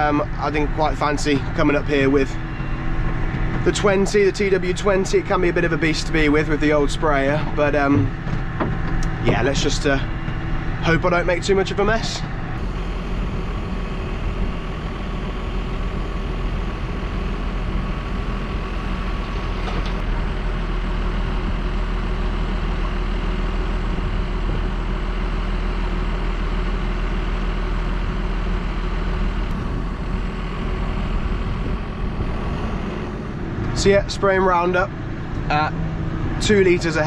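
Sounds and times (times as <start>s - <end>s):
faint steady whine: 0.0s - 26.1s
tractor engine droning: 0.0s - 37.0s.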